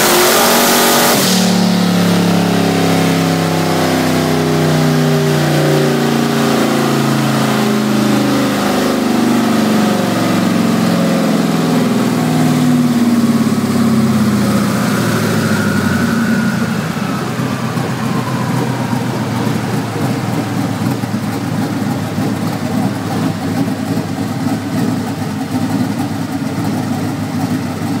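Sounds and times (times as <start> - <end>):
engine revving then idling: 0.0 - 28.0
turbo whistle: 12.2 - 21.3.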